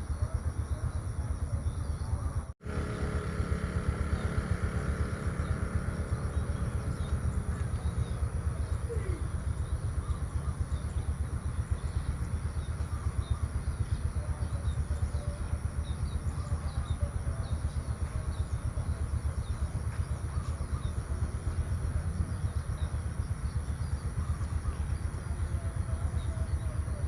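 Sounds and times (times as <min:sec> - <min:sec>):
small birds chirping: 0:00.0 - 0:27.0
fluttering low rumble: 0:00.1 - 0:27.0.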